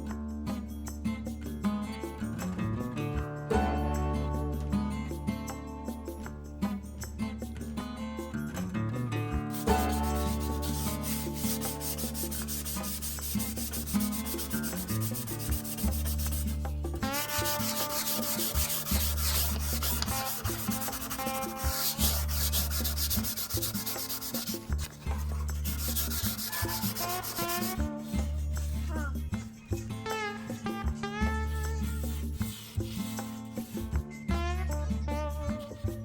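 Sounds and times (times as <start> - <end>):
sandpaper sanding wood: 9.5 - 29.2, 31.8 - 33.9.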